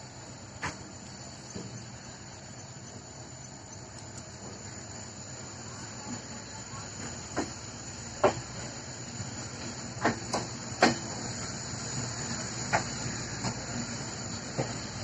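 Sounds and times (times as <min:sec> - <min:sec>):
steady high hiss: 0:00.0 - 0:15.0
wheels clunking over rail joints: 0:06.0 - 0:15.0.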